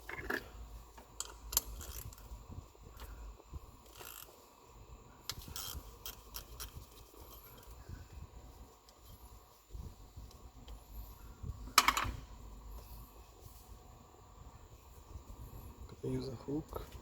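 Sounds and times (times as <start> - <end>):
tools clicking and scraping: 3.8 - 4.3.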